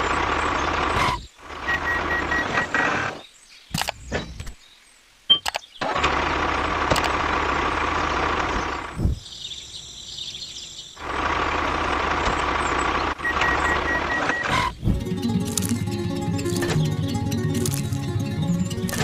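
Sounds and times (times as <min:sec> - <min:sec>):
click: 0:03.7 - 0:04.5, 0:05.4 - 0:05.6, 0:06.9 - 0:07.1.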